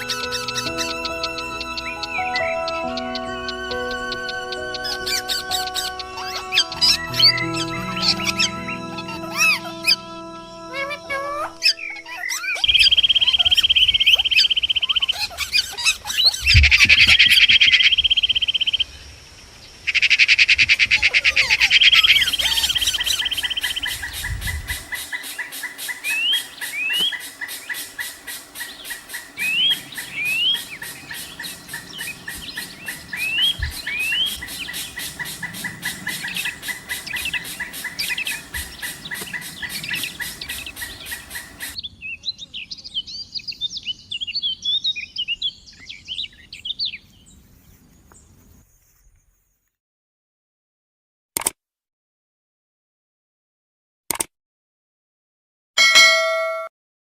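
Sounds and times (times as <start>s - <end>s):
birds trilling: 0.0s - 18.9s, 19.8s - 41.9s
short rising bird chirps: 21.8s - 41.8s.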